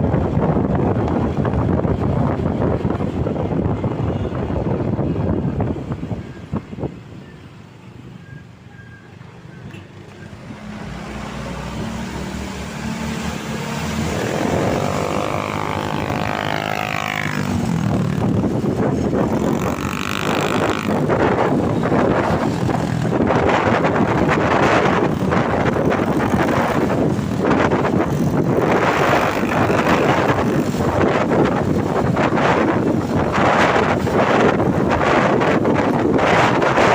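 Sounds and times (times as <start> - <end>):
tyre and wind rush: 0.0 - 36.9
truck engine passing: 9.9 - 34.6.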